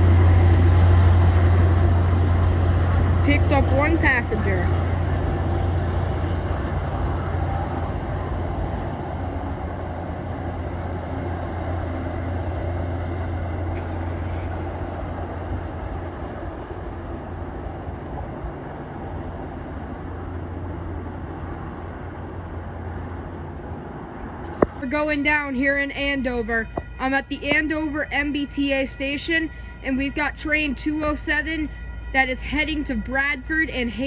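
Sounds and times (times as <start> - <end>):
diesel locomotive drone: 0.0 - 34.0
rail noise: 0.0 - 34.0.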